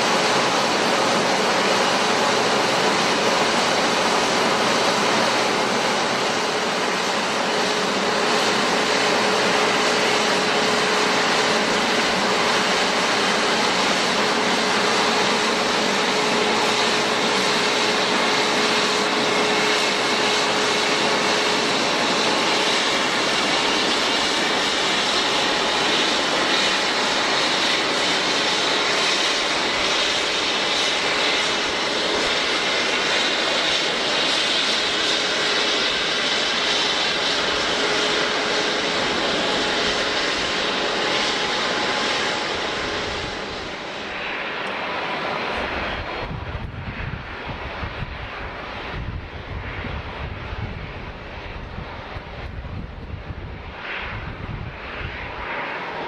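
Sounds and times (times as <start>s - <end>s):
jet engines running: 0.0s - 56.0s
steady whine: 0.0s - 56.0s.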